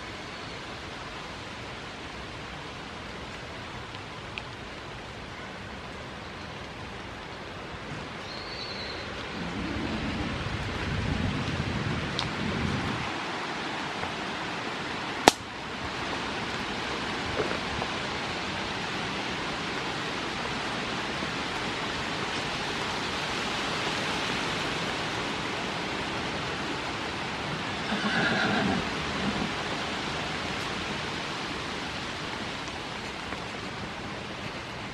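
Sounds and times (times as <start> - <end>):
rain hissing: 0.0 - 34.9
low rumbling: 9.0 - 13.1.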